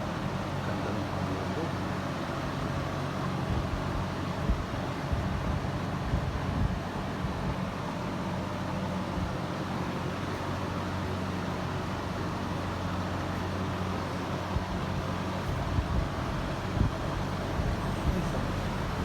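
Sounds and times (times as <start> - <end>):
scooter engine idling: 10.6 - 19.0.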